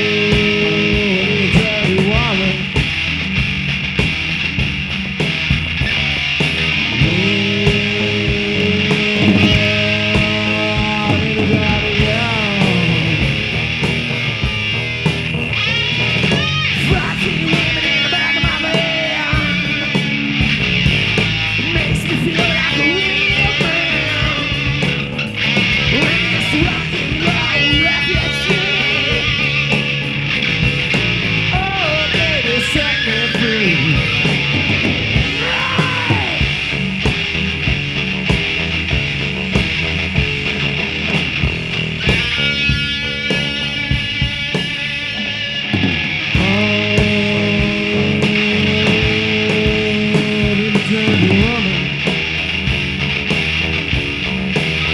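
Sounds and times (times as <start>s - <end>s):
drums: 0.0s - 54.9s
electric guitar rock music: 0.0s - 54.9s.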